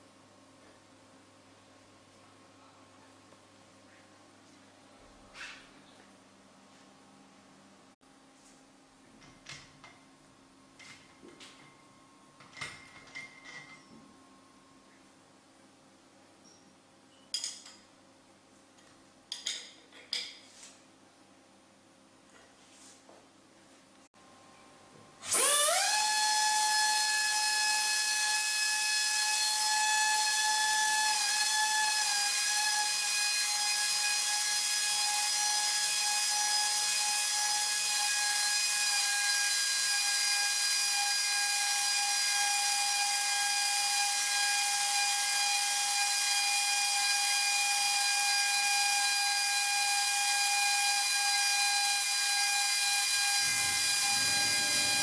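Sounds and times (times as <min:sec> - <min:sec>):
air motor high whine: 0:25.2 - 0:31.6, 0:53.0 - 0:55.0.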